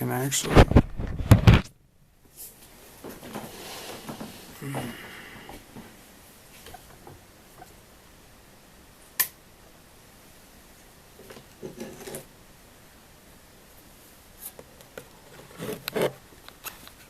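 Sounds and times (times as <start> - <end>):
small objects rustling and clattering: 3.0 - 4.9.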